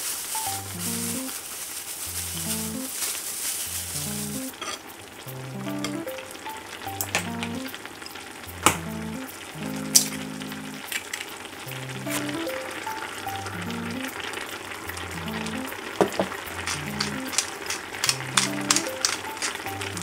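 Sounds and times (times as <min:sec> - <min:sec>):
food sizzling in a hot pan: 0:00.0 - 0:20.0
utensil knocking against pan: 0:16.0 - 0:19.7.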